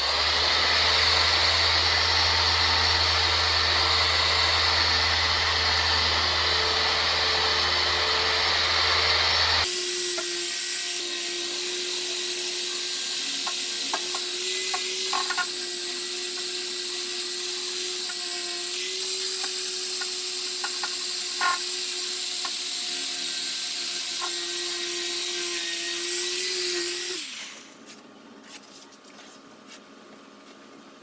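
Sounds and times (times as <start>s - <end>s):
power sander running: 0.0s - 27.8s
light taps and scrapes: 27.8s - 30.6s.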